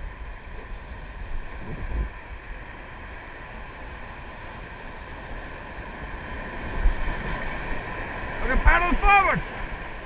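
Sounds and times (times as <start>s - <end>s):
river water rushing: 0.0s - 10.0s
wind buffeting microphone: 0.8s - 2.5s.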